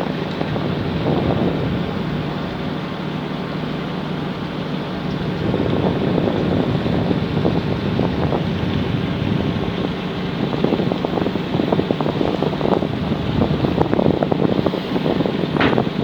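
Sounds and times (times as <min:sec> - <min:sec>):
wind buffeting microphone: 0:00.0 - 0:03.0, 0:04.8 - 0:16.0
ferry engines humming: 0:00.0 - 0:16.0.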